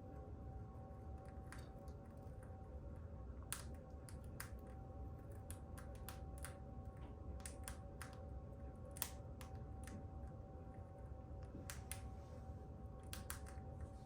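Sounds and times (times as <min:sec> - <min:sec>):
faint steady hum: 0:00.0 - 0:14.0
light clicks and taps: 0:03.5 - 0:08.3.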